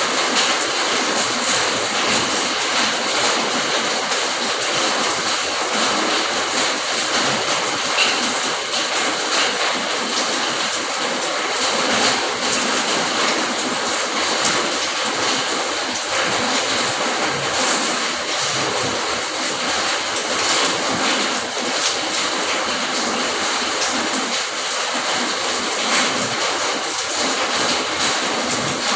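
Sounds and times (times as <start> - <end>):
steady rain falling: 0.0 - 28.9.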